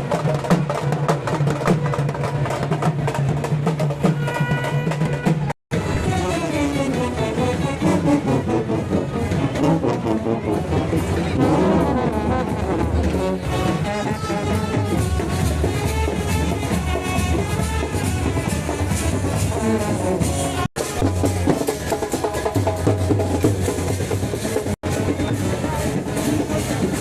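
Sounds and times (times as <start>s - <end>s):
brass band playing: 4.0s - 24.8s.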